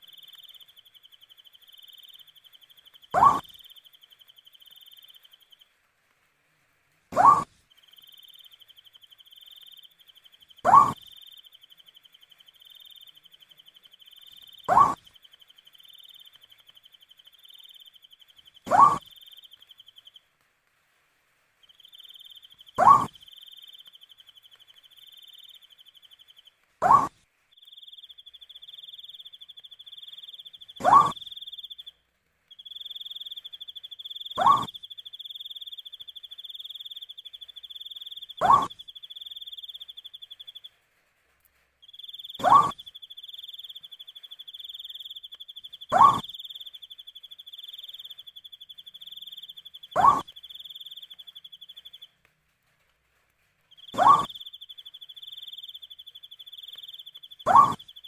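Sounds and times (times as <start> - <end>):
owl calling: 1.9 - 3.8, 7.1 - 9.8, 10.4 - 11.5, 14.0 - 20.1, 21.8 - 27.2, 28.0 - 31.9, 32.6 - 40.6, 42.0 - 52.1, 53.8 - 58.0
high pulsing insect trill: 53.8 - 58.0.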